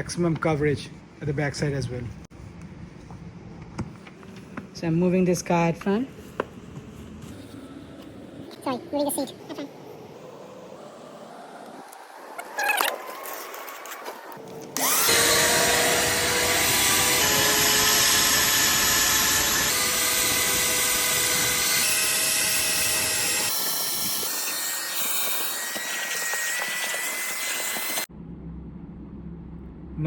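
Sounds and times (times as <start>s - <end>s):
vacuum cleaner running: 14.8s - 23.5s.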